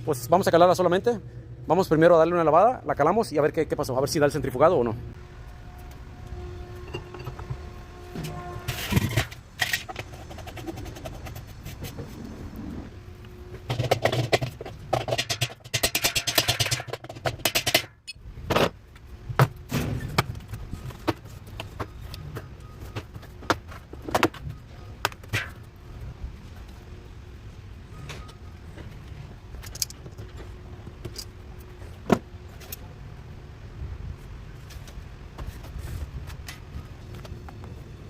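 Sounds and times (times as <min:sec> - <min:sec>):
rapid clicking and rattling: 0:13.7 - 0:18.0.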